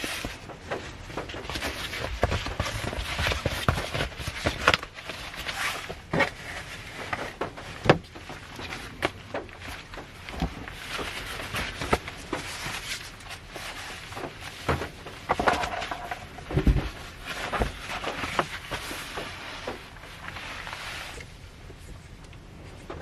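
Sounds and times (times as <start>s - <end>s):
clicks and knocks in car: 7.0s - 12.5s.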